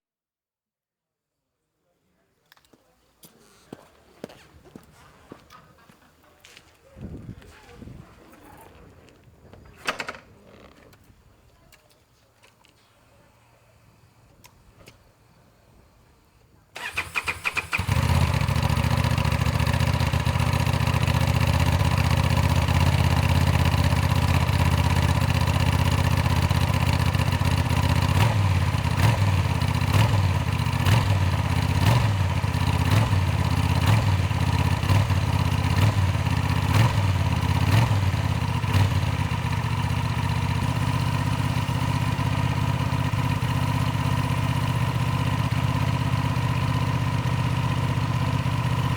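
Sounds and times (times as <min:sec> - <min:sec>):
engine starter cranking: 0:16.8 - 0:20.5
motorcycle engine idling: 0:16.8 - 0:48.9.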